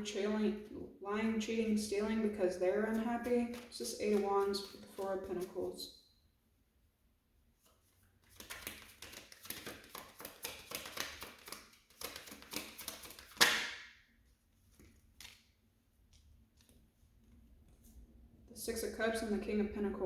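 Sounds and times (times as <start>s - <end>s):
cards shuffling: 2.8s - 5.8s, 7.6s - 13.7s, 14.7s - 15.5s
cards slapping: 2.8s - 5.8s, 8.2s - 13.9s, 14.7s - 15.5s.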